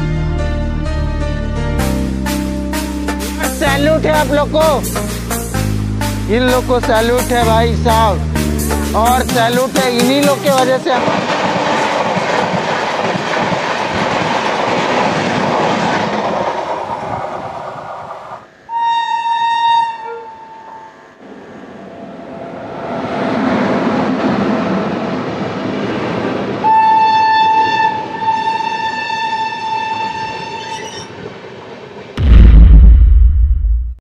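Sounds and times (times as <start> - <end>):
train wheels clattering on rails: 9.3 - 17.9
locomotive horn: 18.5 - 21.2, 26.6 - 31.1.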